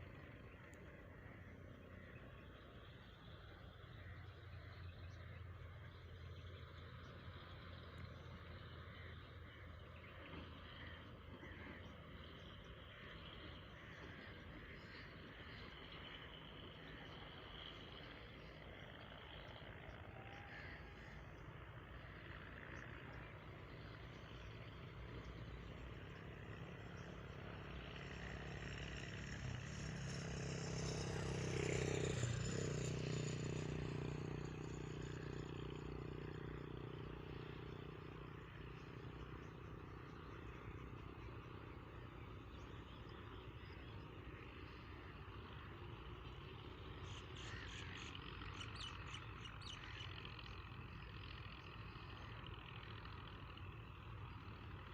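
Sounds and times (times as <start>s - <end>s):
birds chirping: 30.8s - 54.9s.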